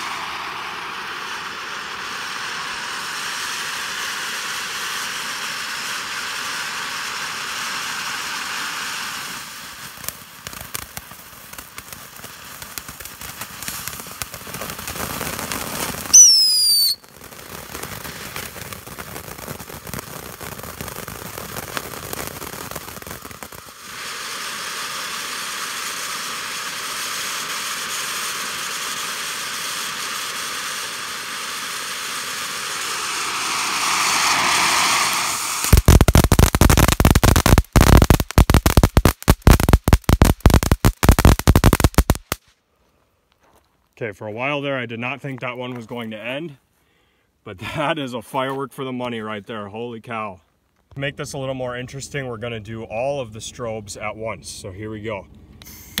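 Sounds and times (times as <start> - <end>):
shrill falling firework whistle: 0.0 - 10.8, 14.6 - 42.4, 55.6 - 56.0
fireworks hissing: 0.0 - 42.5, 55.6 - 56.0
fireworks crackling and popping: 0.0 - 42.6, 43.3 - 46.6, 47.5 - 56.0.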